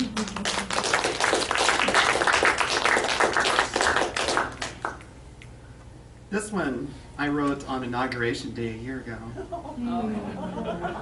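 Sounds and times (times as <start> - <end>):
audience clapping: 0.0 - 5.1.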